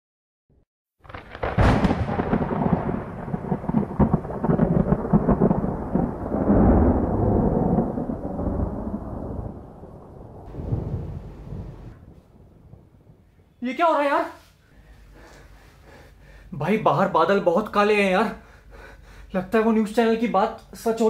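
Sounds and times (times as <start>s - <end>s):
thunder crash and rumble: 1.0s - 13.6s.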